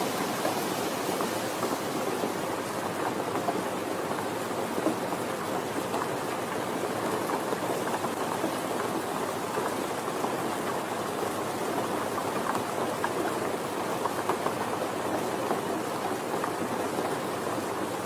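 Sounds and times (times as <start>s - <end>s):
rain hissing: 0.0s - 3.2s.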